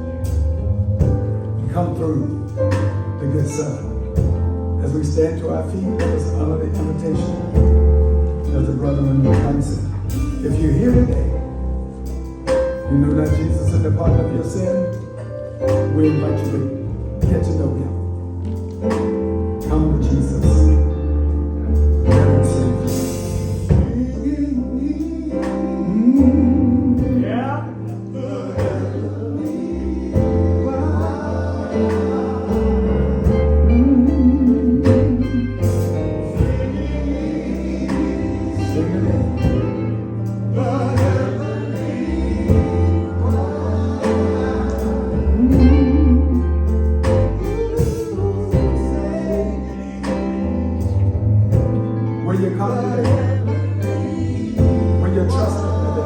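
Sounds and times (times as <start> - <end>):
instrumental backing with bass and beat: 0.0 - 56.0
person singing with vibrato: 22.2 - 39.8, 40.4 - 50.6.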